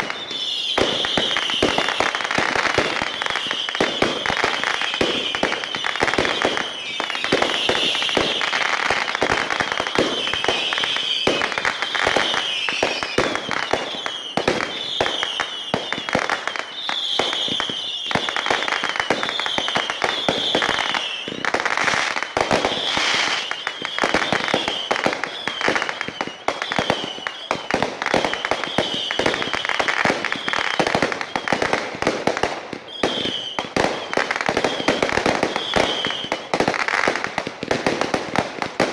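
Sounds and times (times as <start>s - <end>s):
fireworks bangs and crackles: 0.0s - 38.9s
high falling firework whistles: 0.0s - 38.9s.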